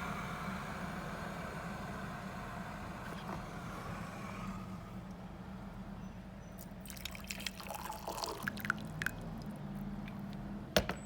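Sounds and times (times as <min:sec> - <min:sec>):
electric kettle humming: 0:00.0 - 0:05.2
water dripping and trickling: 0:06.6 - 0:09.8.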